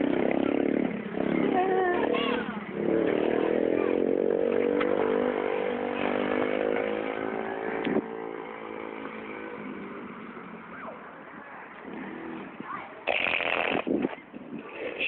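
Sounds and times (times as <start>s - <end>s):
dirt bike engine running: 0.0s - 10.5s.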